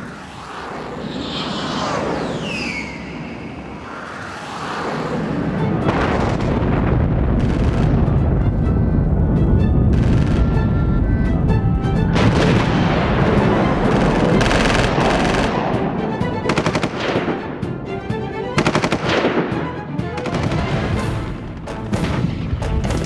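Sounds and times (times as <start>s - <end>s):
music: 5.4s - 23.0s.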